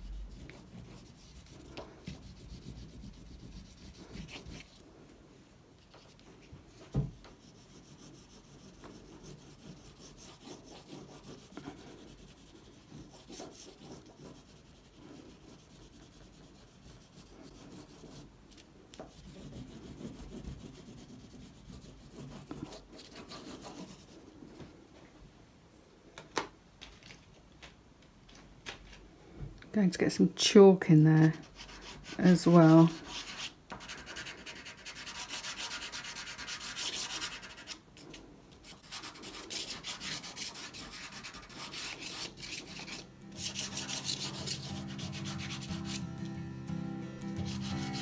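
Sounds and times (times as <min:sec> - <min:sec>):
oil pastel scraping paper: 0:00.0 - 0:04.8, 0:31.3 - 0:46.0.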